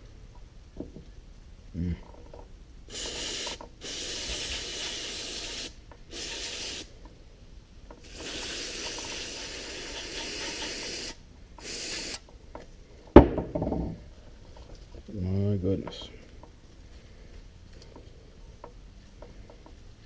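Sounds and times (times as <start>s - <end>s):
aerosol spray hissing: 2.9s - 6.9s, 8.0s - 12.2s.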